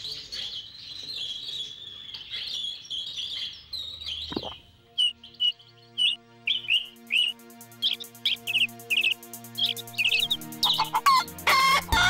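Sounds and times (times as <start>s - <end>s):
small birds chirping: 0.0s - 12.0s
soft background music: 3.7s - 12.0s.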